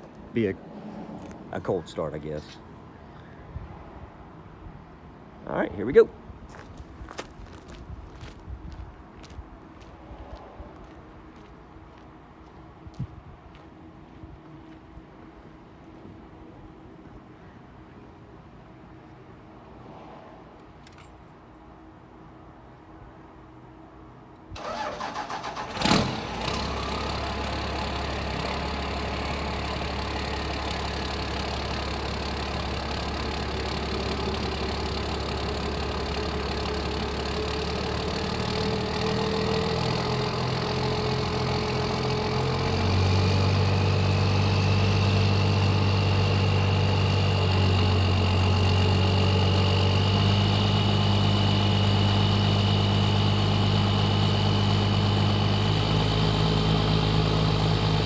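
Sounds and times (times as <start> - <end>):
diesel engine idling: 24.6 - 58.0.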